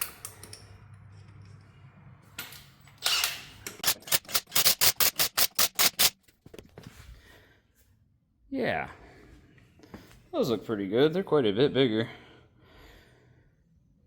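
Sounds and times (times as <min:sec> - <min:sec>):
impact wrench whir: 0:03.0 - 0:06.2
sharp metallic clacks: 0:03.7 - 0:06.2.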